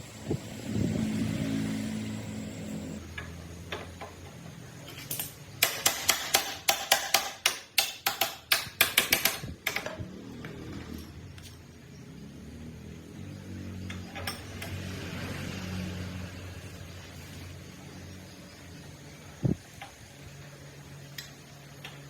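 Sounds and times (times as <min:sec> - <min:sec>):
machine hum: 0:00.0 - 0:04.8.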